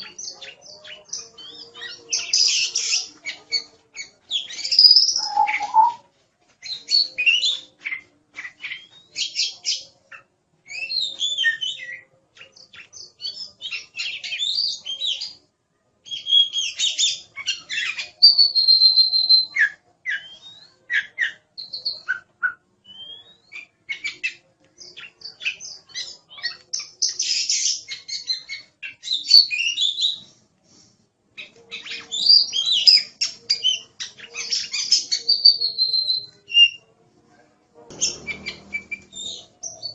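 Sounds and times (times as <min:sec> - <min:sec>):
songbird singing whistles: 0:00.2 - 0:06.0, 0:10.7 - 0:15.4, 0:16.1 - 0:30.2, 0:31.7 - 0:36.8, 0:37.9 - 0:39.9.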